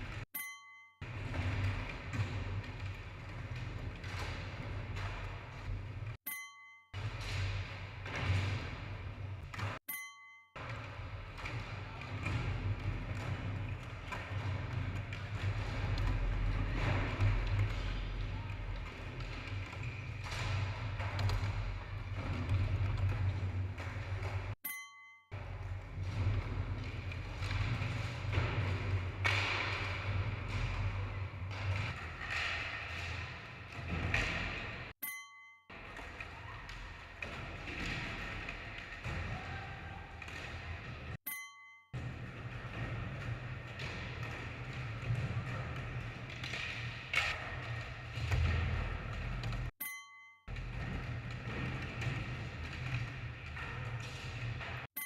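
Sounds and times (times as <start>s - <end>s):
skateboards tapping and thumping: 1.1s - 6.2s, 7.0s - 9.8s, 10.6s - 24.6s, 25.4s - 34.9s, 35.7s - 41.2s, 42.0s - 49.8s, 50.5s - 55.0s
skateboard clacks and thuds: 10.6s - 24.6s.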